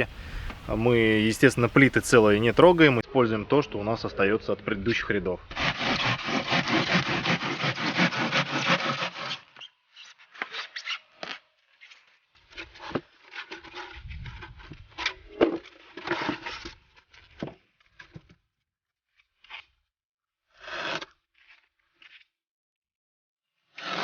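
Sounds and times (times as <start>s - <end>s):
foam board being cut: 5.5s - 9.7s, 20.6s - 22.2s, 23.7s - 24.0s.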